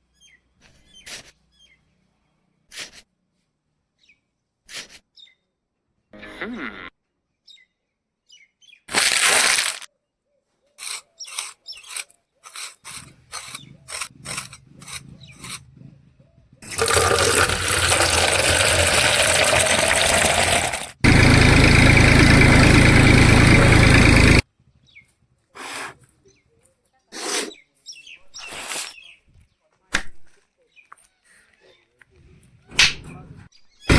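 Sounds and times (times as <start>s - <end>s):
water rushing from pump: 8.9s - 9.8s, 16.6s - 24.4s
small pump motor humming: 16.6s - 24.4s.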